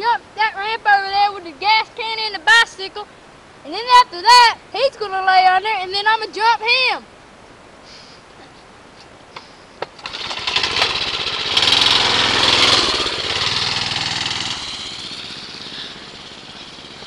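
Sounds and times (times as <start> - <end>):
dirt bike engine passing: 10.0 - 17.0.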